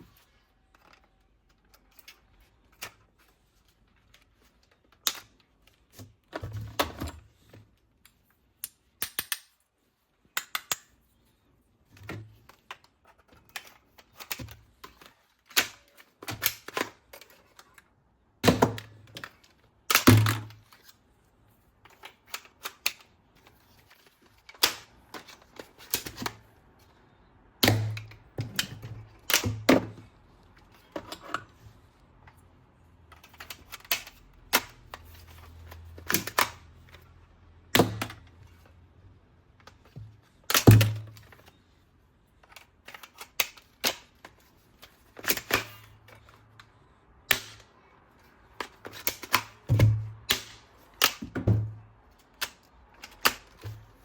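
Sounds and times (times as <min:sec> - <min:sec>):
plastic toy parts clicking: 0:03.9 - 0:06.4, 0:07.9 - 0:11.0, 0:11.9 - 0:21.0, 0:21.9 - 0:31.6, 0:33.1 - 0:38.7, 0:42.3 - 0:51.4, 0:52.1 - 0:54.0.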